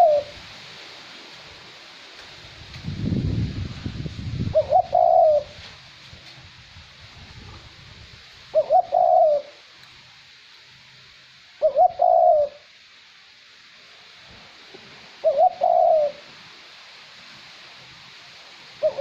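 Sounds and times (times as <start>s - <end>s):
dove cooing: 0.0s - 0.4s, 4.5s - 5.6s, 8.5s - 9.7s, 11.6s - 12.7s, 15.2s - 16.3s, 18.8s - 19.0s
faint light wind: 0.0s - 19.0s.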